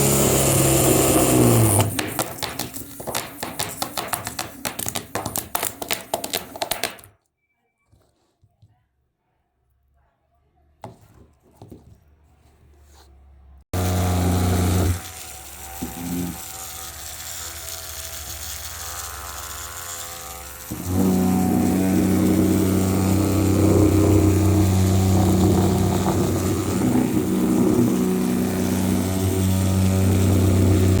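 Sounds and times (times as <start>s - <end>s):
loud electrical buzz: 0.0s - 2.0s, 13.8s - 31.0s.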